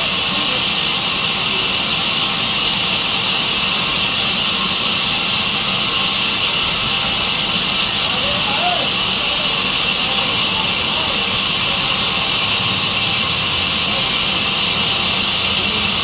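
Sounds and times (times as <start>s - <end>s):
sawmill saw hissing: 0.0s - 16.0s.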